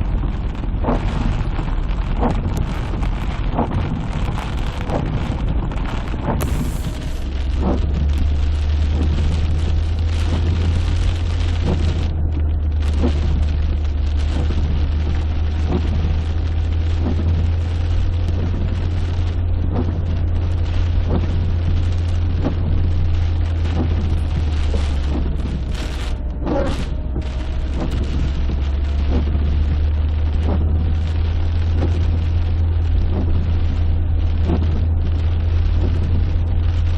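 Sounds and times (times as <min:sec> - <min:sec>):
heavy rain and wind: 0:00.0 - 0:36.9
low rumble: 0:00.0 - 0:36.9.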